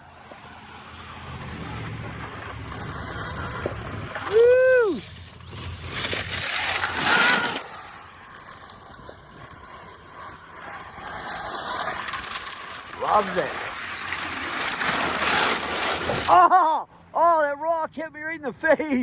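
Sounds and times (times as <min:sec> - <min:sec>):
rush of tyres and flung dirt: 0:00.0 - 0:16.9
rc truck motor and tyres: 0:00.0 - 0:19.0
man whooping: 0:04.2 - 0:05.1.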